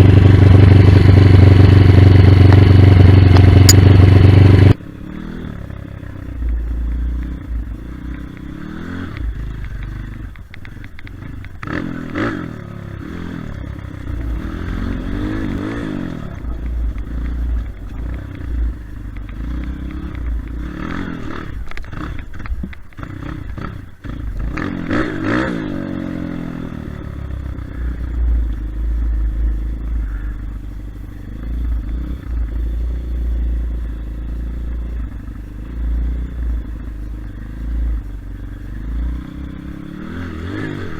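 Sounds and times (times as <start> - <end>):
dirt bike engine revving: 11.2 - 22.4, 23.0 - 40.9.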